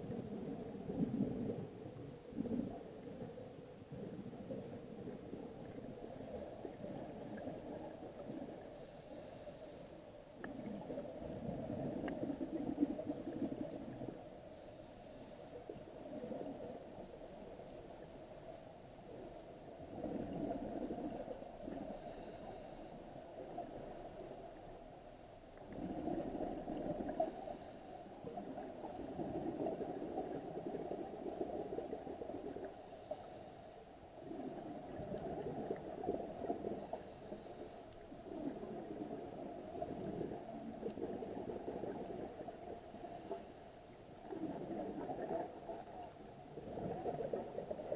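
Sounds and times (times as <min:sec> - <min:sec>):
exhaled bubbles rushing: 0:10.5 - 0:14.3, 0:38.3 - 0:42.7, 0:44.2 - 0:45.9, 0:46.5 - 0:47.9
regulator hissing inhalations: 0:22.0 - 0:23.0, 0:32.8 - 0:33.8, 0:36.8 - 0:37.9.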